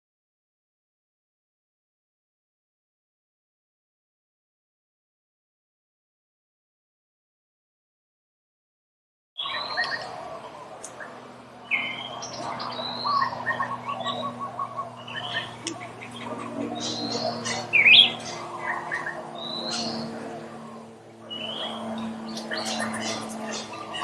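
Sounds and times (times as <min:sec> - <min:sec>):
birds chirping and calling: 0:09.4 - 0:24.0.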